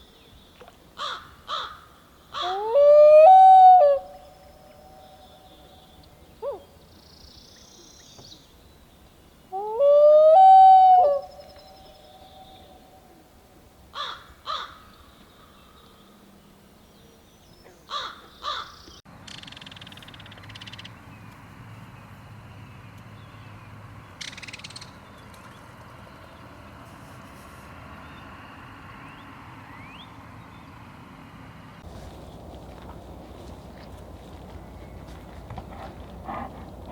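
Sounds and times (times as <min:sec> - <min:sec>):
steady outdoor hiss: 0:00.0 - 0:36.9
wild animal calls: 0:31.9 - 0:36.9.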